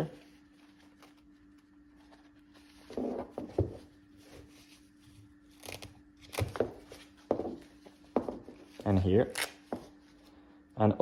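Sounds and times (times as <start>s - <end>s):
velcro strap ripping: 9.2s - 9.6s.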